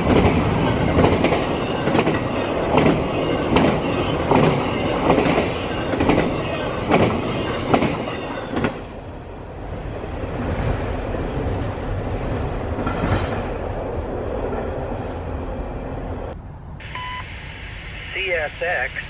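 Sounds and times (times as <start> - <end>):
train wheels clicking over rail joints: 0.0 - 8.8
train rumble: 0.0 - 19.0.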